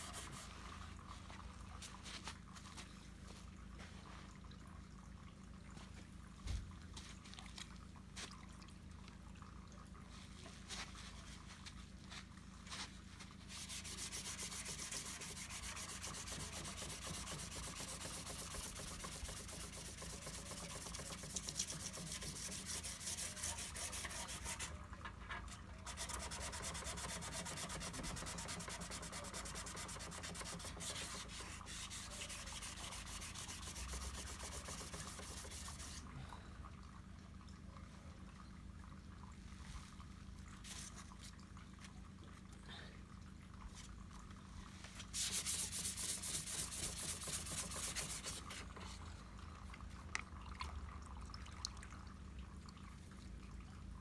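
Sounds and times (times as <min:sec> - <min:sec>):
sandpaper scratching over filler: 0:00.0 - 0:00.6, 0:13.5 - 0:24.8, 0:25.8 - 0:36.0, 0:45.2 - 0:48.9.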